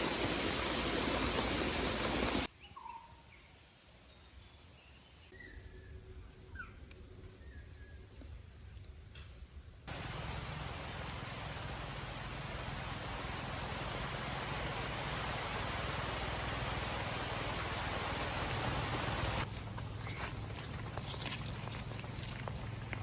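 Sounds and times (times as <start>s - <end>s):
heavy rain hissing: 0.0s - 2.5s, 9.9s - 19.5s
constant high whine: 8.8s - 23.0s.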